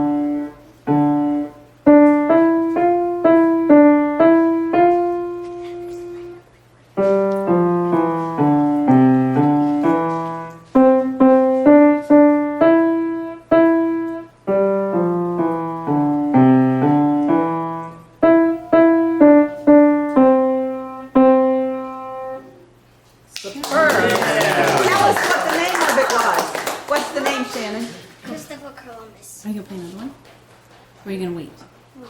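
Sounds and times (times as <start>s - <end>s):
child playing piano: 0.0s - 22.6s.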